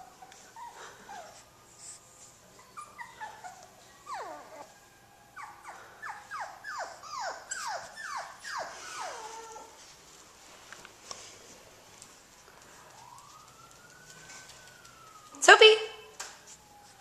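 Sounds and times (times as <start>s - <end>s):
puppy whining and yipping: 0.0s - 9.8s.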